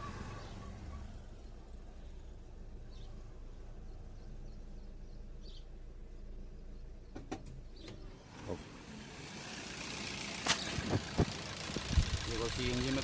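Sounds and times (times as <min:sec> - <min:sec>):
faint bird chirps: 0:00.0 - 0:08.2
car engine idling: 0:00.0 - 0:13.0.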